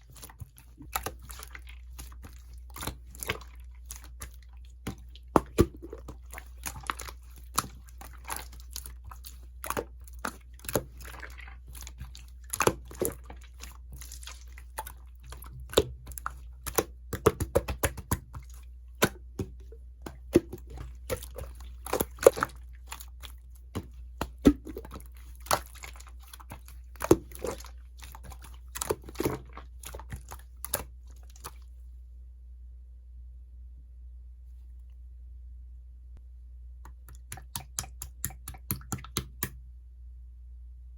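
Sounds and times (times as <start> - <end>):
slime squishing and popping: 0.0 - 31.5.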